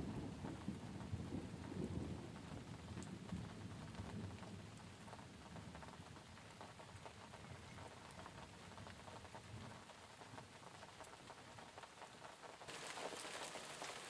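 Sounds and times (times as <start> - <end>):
low thunder rumble: 0.0 - 4.8
soft rain pattering: 0.0 - 14.0.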